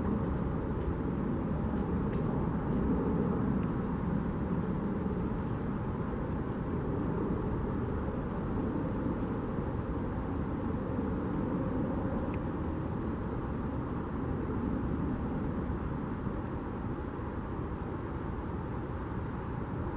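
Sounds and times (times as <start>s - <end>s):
low outdoor rumble: 0.0s - 19.9s.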